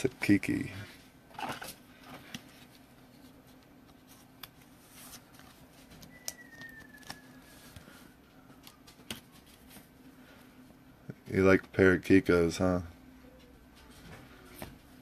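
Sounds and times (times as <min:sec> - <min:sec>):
trading cards clicking and rustling: 0:03.6 - 0:09.9
faint high whistle sliding down: 0:06.1 - 0:07.8.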